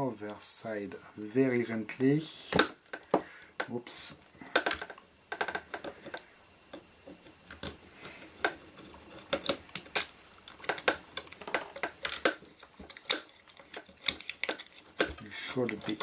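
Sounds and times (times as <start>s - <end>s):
screwdriver and metal parts clicking: 8.4s - 16.0s.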